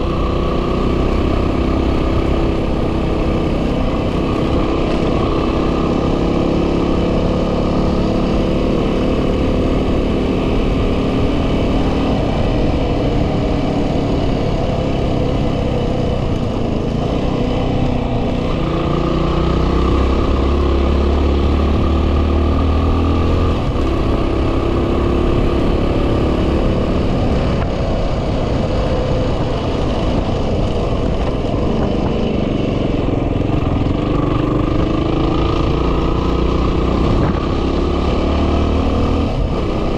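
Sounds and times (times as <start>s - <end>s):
motorcycle engine running: 0.0s - 39.9s
wind buffeting microphone: 23.1s - 37.9s.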